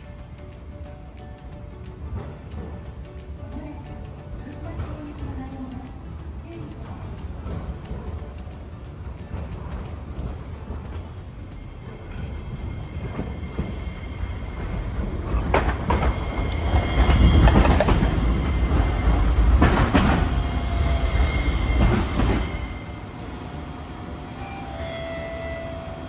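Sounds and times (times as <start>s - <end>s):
tram rumbling past: 0.0s - 26.0s
wheels clacking on track: 0.0s - 26.0s.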